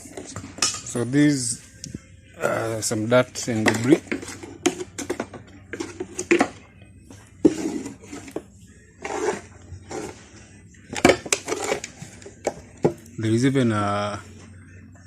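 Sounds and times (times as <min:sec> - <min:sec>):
scraping: 0:07.4 - 0:12.7.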